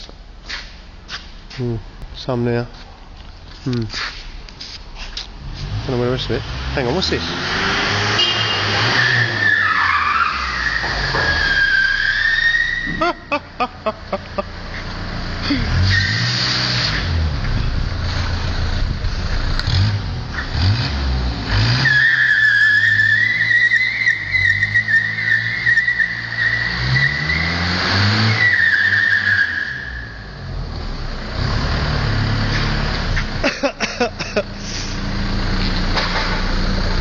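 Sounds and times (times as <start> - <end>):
truck engine revving: 5.4 - 37.0
tyres squealing: 8.4 - 14.2, 21.8 - 30.2.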